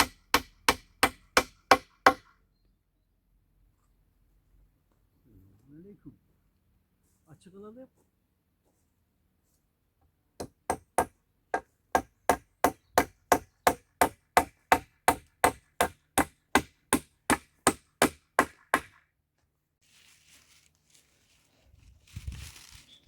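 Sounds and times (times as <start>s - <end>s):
hand tool striking wood: 0.0s - 2.3s, 10.4s - 19.0s.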